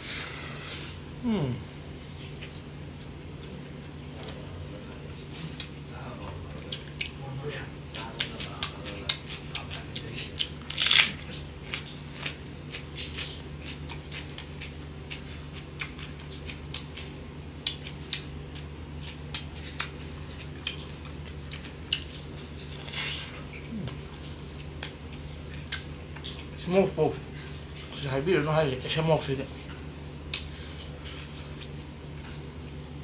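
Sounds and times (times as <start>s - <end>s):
steady low hum: 0.0s - 33.0s
person chewing with lip smacks: 5.4s - 5.8s, 6.6s - 7.2s, 8.0s - 26.6s, 29.7s - 31.8s.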